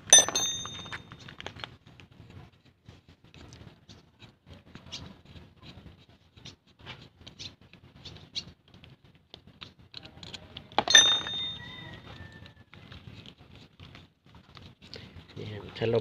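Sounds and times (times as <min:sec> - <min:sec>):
small metallic clicks and scrapes: 0:00.0 - 0:16.0
sharp ringing metal clank: 0:00.1 - 0:01.1, 0:10.8 - 0:11.7.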